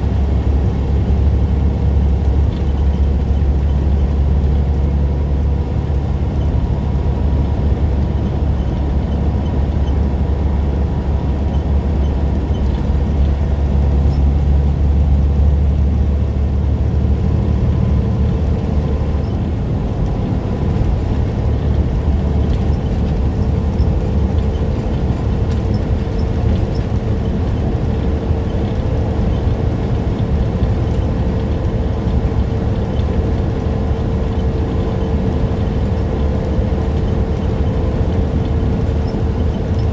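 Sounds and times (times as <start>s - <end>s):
road noise: 0.0s - 39.9s
truck engine drone: 0.0s - 39.9s.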